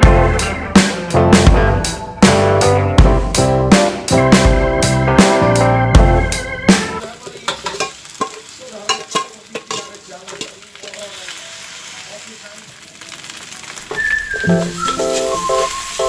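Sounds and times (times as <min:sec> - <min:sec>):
frying hiss: 0:00.0 - 0:05.4, 0:07.0 - 0:16.0
soft music: 0:00.0 - 0:07.2, 0:13.9 - 0:16.0
utensil knocking against pan: 0:07.5 - 0:10.5.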